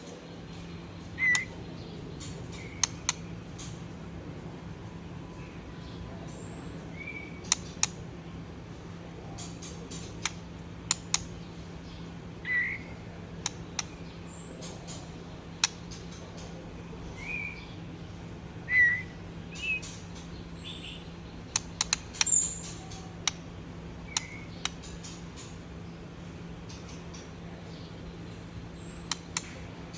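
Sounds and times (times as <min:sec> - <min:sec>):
steady low hum: 0:00.0 - 0:29.9
baby birds chirping: 0:01.2 - 0:03.2, 0:18.6 - 0:25.6, 0:26.6 - 0:29.6
sharp clicks and ticks: 0:02.6 - 0:03.8, 0:10.0 - 0:11.3, 0:15.6 - 0:15.9, 0:21.5 - 0:23.4, 0:29.0 - 0:29.6.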